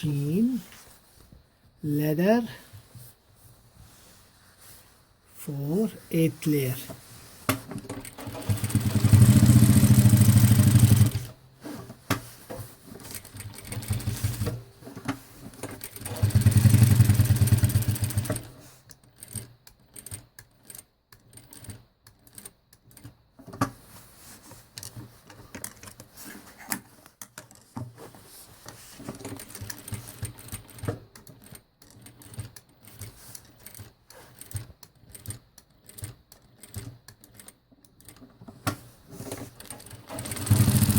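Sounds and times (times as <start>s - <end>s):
sewing machine running: 8.0s - 11.3s, 13.0s - 14.6s, 15.8s - 18.5s, 39.7s - 40.9s.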